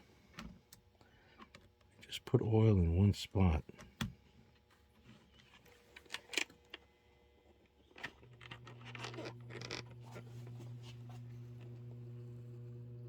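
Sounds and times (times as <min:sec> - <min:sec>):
handling clicks and scrapes: 0:07.5 - 0:11.8
electric motor hum: 0:08.3 - 0:13.0.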